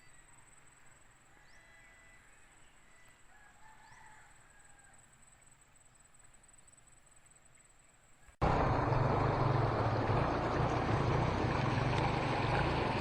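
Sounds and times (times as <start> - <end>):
low rumble: 8.4 - 13.0.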